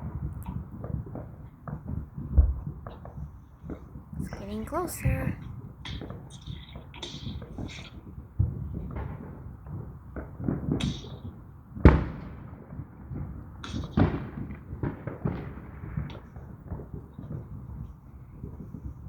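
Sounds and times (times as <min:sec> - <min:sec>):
fireworks bangs: 0:00.0 - 0:06.2.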